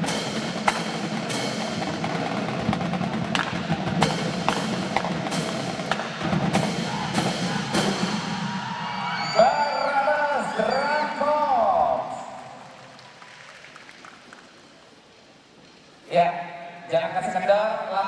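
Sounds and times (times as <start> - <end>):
marching drum line rolls: 0.0 - 8.9.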